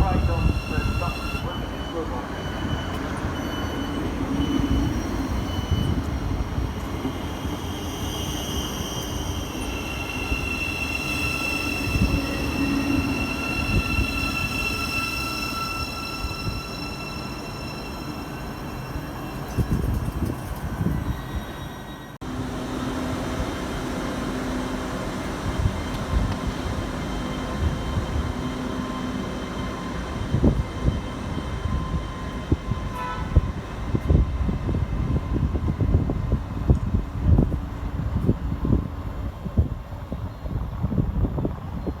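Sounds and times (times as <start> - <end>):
train brakes squealing: 0.0 - 23.1, 24.1 - 36.3.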